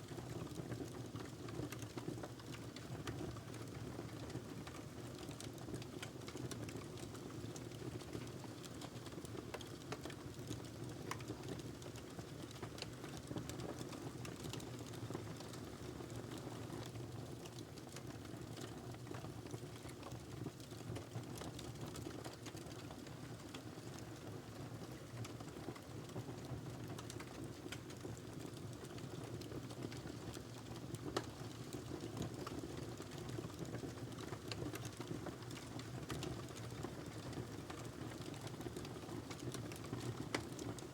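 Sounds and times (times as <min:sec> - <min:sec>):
fire crackling and popping: 0:26.8 - 0:40.7.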